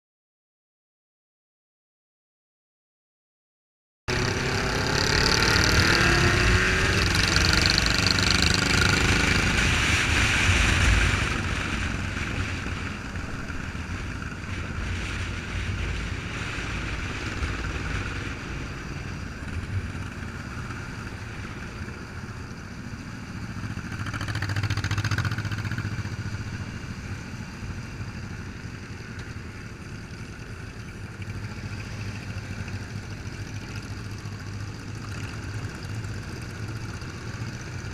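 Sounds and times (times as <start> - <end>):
motorcycle engines revving: 4.1 - 37.9.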